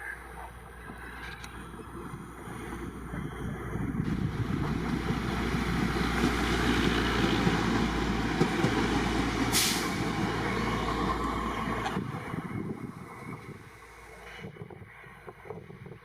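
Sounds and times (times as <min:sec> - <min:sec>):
train wagons rumbling on rails: 0:00.0 - 0:16.0
sharp hiss: 0:09.4 - 0:10.4.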